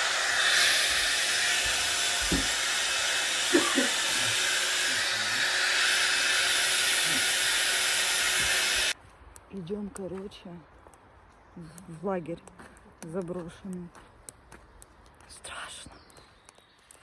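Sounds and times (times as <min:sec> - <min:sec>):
loud rushing hiss: 0:00.0 - 0:09.0.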